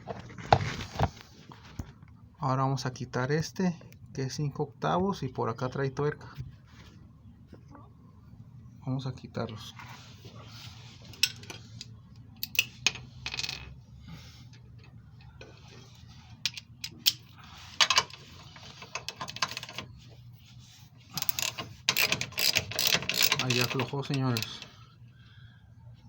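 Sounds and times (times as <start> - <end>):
faint steady hum: 0.0 - 26.0
wrenches clinking on steel: 16.5 - 19.9, 21.1 - 24.7.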